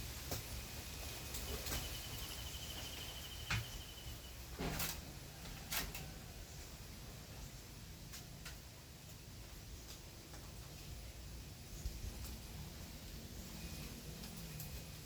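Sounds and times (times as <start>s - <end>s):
low wind rumble: 5.1s - 15.0s.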